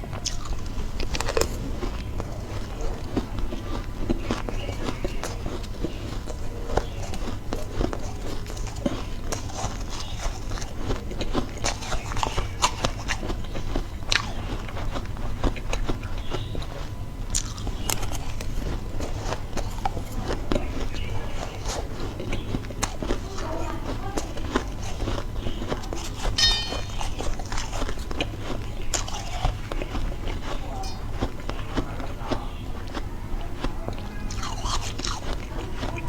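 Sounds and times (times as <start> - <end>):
ice crunching being chewed: 0.0 - 36.0
steady low hum: 0.0 - 36.0.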